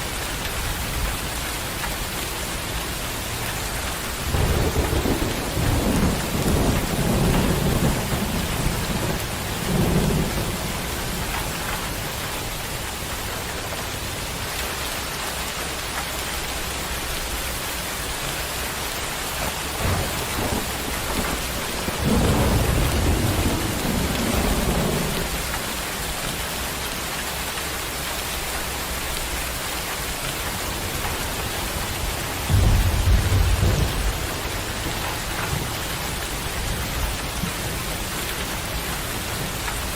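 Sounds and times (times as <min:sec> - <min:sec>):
heavy rain: 0:00.0 - 0:39.9
rolling thunder: 0:04.0 - 0:12.2, 0:19.4 - 0:26.2, 0:30.5 - 0:39.5.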